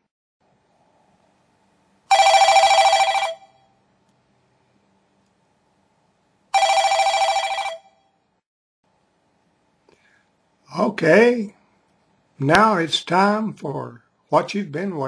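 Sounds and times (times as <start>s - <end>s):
telephone ringing: 2.1s - 3.8s, 6.5s - 8.1s.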